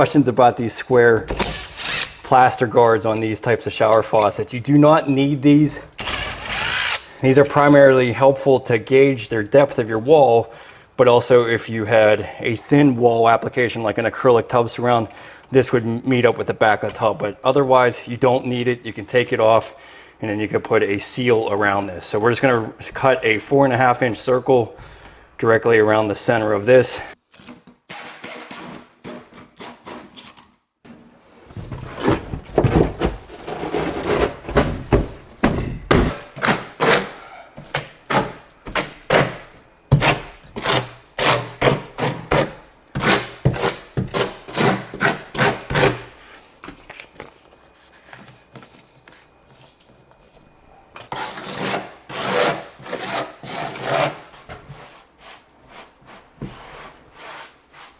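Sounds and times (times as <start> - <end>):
blade sawing strokes: 1.4 - 2.3.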